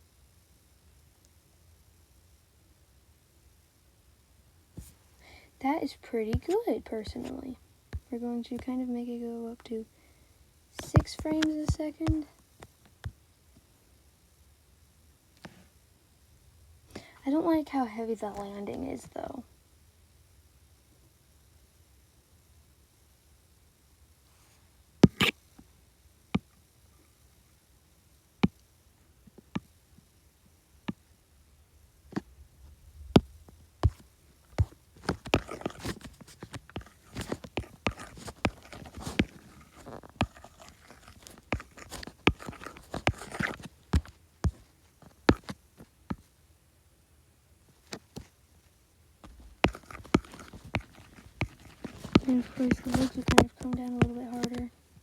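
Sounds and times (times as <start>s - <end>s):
scratchy scraping: 34.6s - 44.7s, 49.2s - 54.7s.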